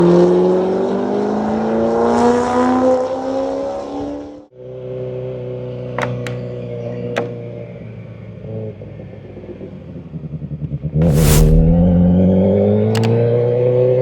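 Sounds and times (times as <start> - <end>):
motorcycle engine accelerating: 11.0 - 12.5.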